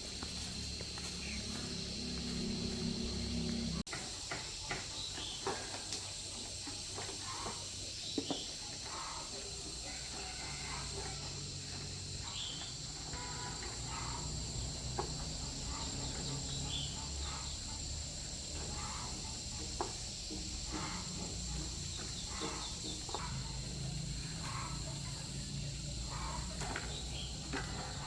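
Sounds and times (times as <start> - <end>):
high insect trilling: 0.0 - 28.0.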